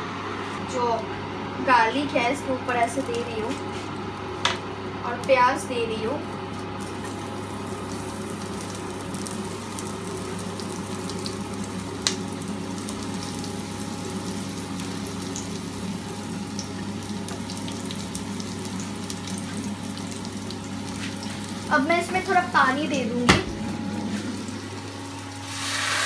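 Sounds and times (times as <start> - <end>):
vegetables sizzling in oil: 5.2 - 26.0.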